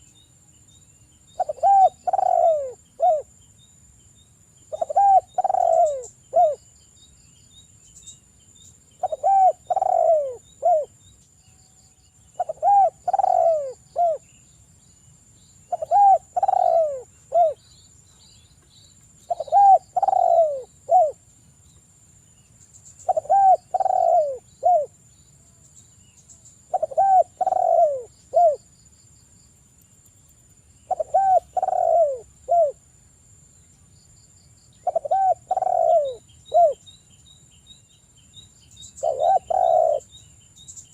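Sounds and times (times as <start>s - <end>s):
dove cooing: 1.4s - 3.3s, 4.7s - 6.6s, 9.0s - 11.0s, 12.4s - 14.2s, 15.7s - 17.6s, 19.3s - 21.2s, 23.0s - 24.9s, 26.7s - 28.6s, 30.9s - 32.8s, 34.8s - 36.8s, 39.0s - 40.1s.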